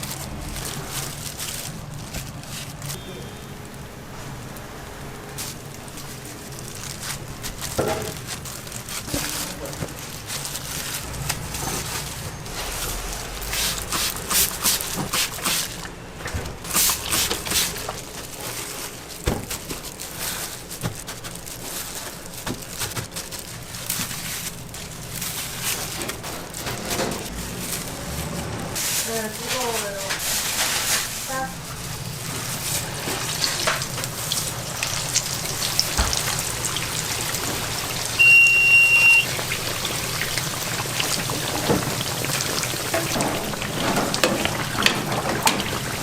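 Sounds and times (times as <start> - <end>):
food hissing and crackling: 0.0 - 3.0, 5.2 - 46.0
knocks and rustles of handling: 0.0 - 3.1, 5.3 - 36.4.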